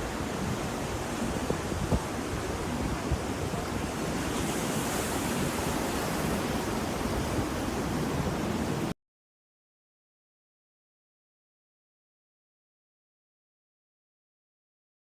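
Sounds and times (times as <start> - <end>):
ocean waves on shore: 0.0 - 8.9.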